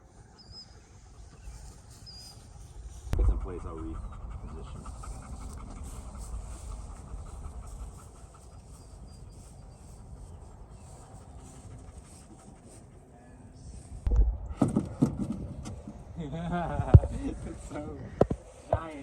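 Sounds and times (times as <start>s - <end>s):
faint outdoor background: 0.0s - 19.0s
dog panting rapidly: 1.2s - 14.0s.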